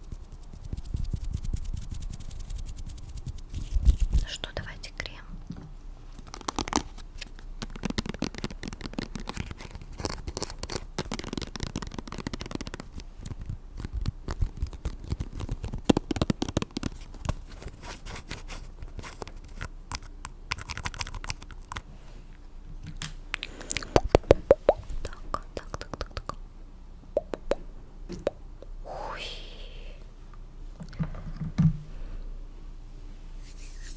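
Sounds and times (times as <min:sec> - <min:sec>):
close crackling and rubbing: 0:00.0 - 0:04.3, 0:06.1 - 0:21.9.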